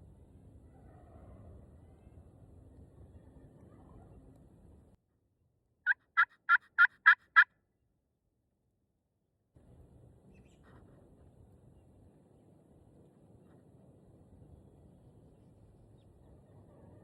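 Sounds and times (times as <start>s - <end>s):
turkey yelping: 5.9s - 7.5s.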